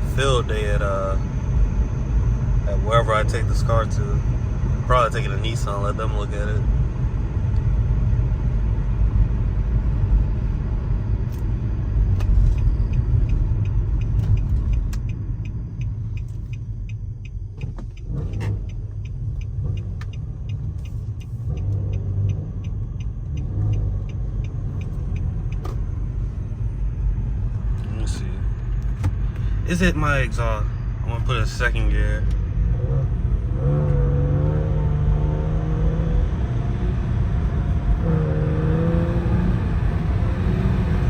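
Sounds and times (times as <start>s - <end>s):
car engine and exhaust droning: 0.0s - 41.0s
light even ticking: 12.2s - 26.8s.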